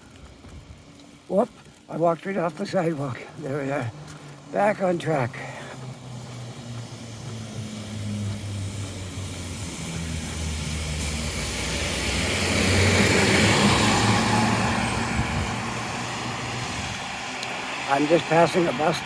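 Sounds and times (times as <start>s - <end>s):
bus engine running: 0.0s - 19.0s
tyres hissing on wet road: 0.1s - 19.0s.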